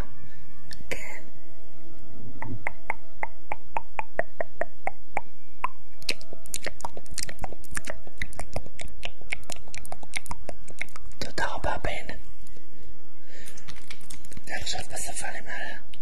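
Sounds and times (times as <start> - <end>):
crisp clicks: 13.4 - 14.5.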